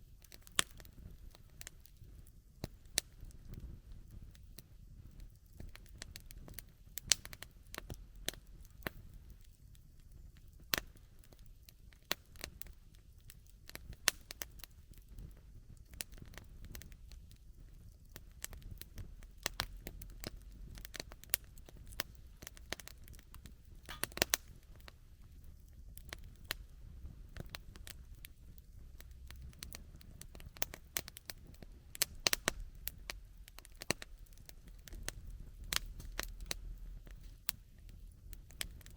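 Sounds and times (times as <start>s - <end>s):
campfire crackling and popping: 0.0s - 38.9s
faint low rumble: 12.6s - 38.9s.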